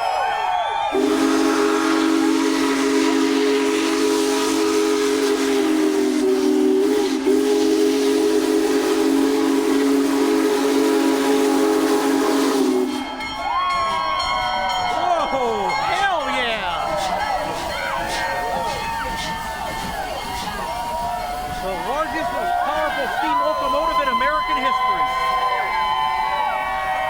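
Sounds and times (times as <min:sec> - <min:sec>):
steam whistle blast: 0:00.0 - 0:13.4, 0:16.9 - 0:27.0
steam hiss: 0:01.0 - 0:13.3, 0:16.7 - 0:25.4.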